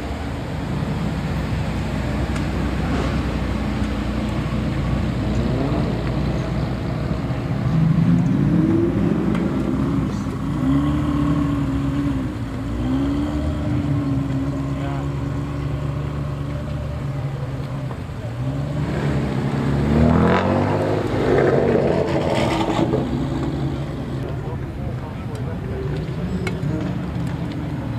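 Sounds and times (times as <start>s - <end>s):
car engines roaring: 0.0s - 27.9s
engine revving: 2.3s - 17.1s, 18.3s - 24.4s.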